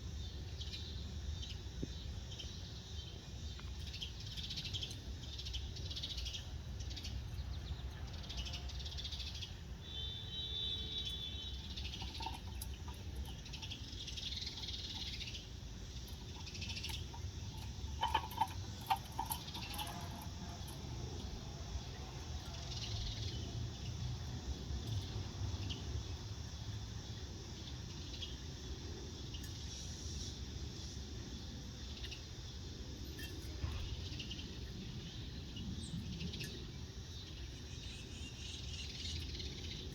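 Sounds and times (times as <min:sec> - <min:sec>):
wild bird chirps and calls: 0:00.2 - 0:24.0.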